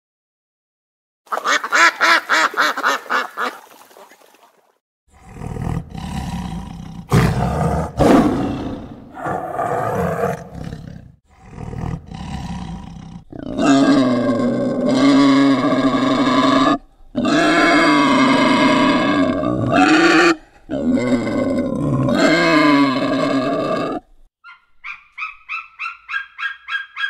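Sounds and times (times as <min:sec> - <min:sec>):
tiger growling and roaring: 0:05.1 - 0:24.2.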